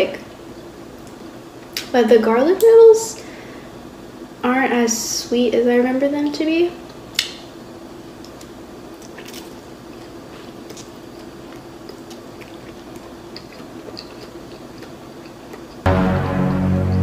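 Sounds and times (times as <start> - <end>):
faint steady hum: 0.0 - 17.0
wet chewing with mouth smacks: 8.3 - 15.9.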